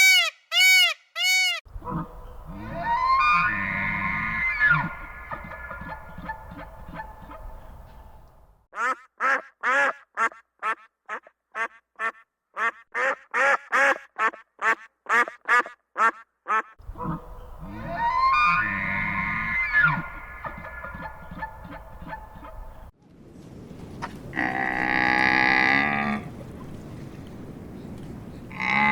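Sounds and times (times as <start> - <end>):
duck quacking: 0.0 - 8.0, 8.8 - 22.9
drawn-out animal calls: 1.7 - 8.2, 16.6 - 22.9, 23.9 - 28.9.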